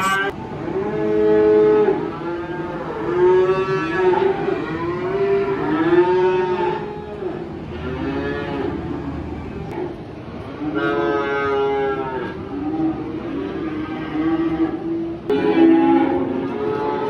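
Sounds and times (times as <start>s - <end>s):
cattle mooing: 0.0s - 0.3s.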